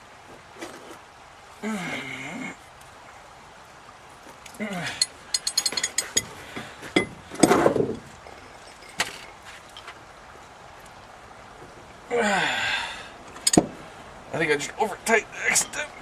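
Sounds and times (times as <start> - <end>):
hand tools clicking and knocking: 5.0 - 7.8, 13.4 - 13.8.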